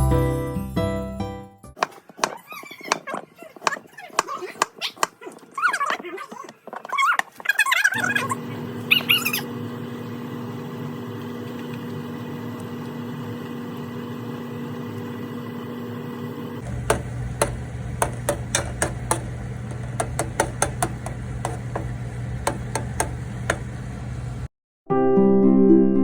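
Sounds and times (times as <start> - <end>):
machine hum: 8.0 - 24.5
sharp knocks and clicks: 16.6 - 24.3.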